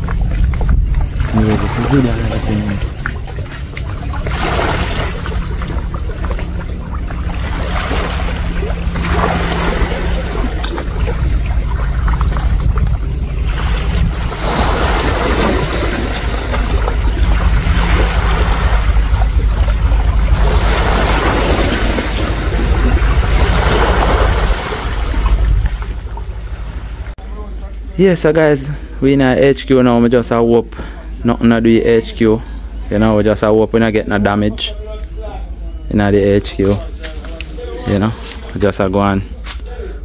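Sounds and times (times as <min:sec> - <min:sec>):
waves washing ashore: 0:00.0 - 0:27.2
wind buffeting microphone: 0:00.0 - 0:27.2.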